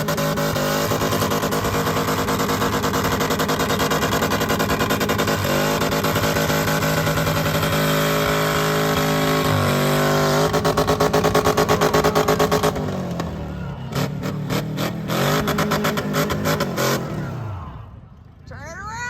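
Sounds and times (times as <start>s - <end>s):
truck engine revving hard: 0.0s - 18.0s.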